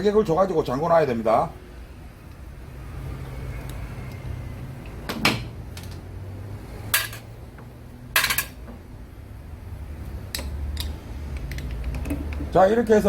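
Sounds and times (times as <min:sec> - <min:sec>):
tools and small parts clattering: 0:06.9 - 0:07.3, 0:08.1 - 0:08.8.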